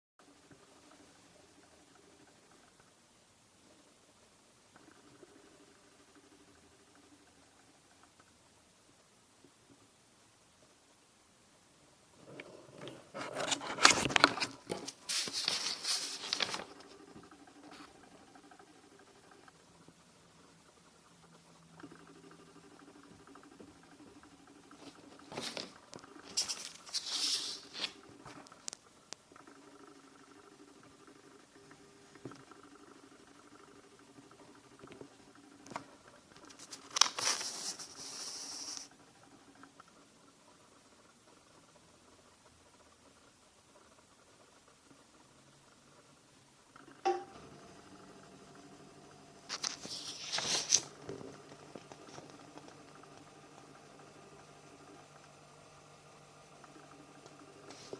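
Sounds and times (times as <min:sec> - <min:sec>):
paper pages rustling: 0:12.9 - 0:17.9, 0:24.8 - 0:28.5, 0:36.4 - 0:38.9, 0:49.5 - 0:53.0.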